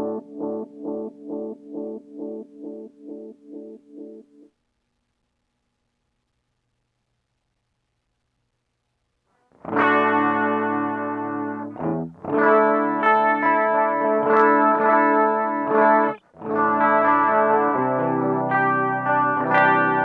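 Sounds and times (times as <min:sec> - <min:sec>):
distorted electric guitar chords: 0:00.0 - 0:04.5, 0:09.6 - 0:20.0.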